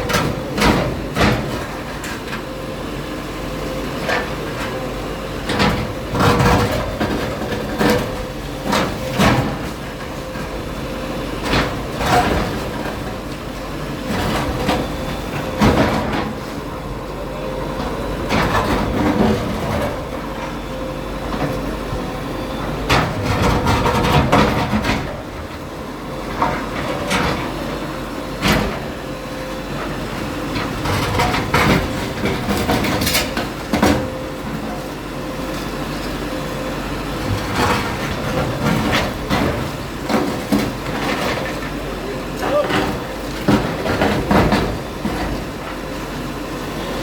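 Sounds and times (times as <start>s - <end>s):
bulldozer diesel engine: 0.0s - 47.0s
demolition knocks and crashes: 22.8s - 25.6s, 30.6s - 34.9s, 37.2s - 45.9s.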